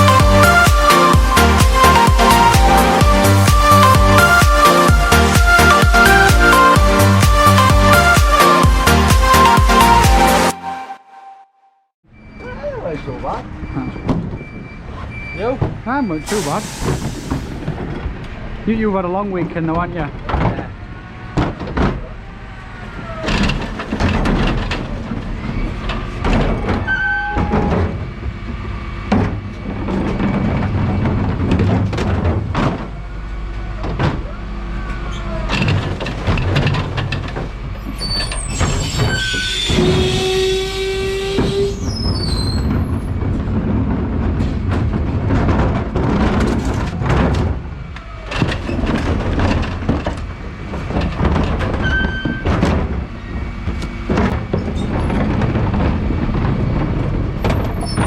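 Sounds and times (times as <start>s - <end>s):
truck engine and road rumble: 0.0s - 10.9s, 12.0s - 58.0s
air hiss: 16.3s - 17.6s
rattles and knocks: 16.9s - 22.2s, 22.8s - 58.0s.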